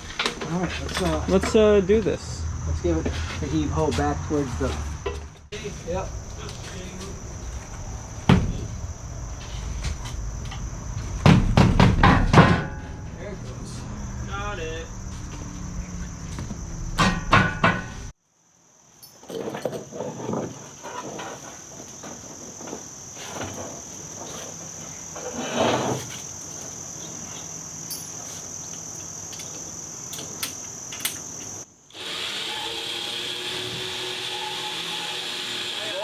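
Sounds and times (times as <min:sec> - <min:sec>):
insect trill: 0:00.0 - 0:36.0
pickup truck clunking and rattling: 0:19.1 - 0:26.9.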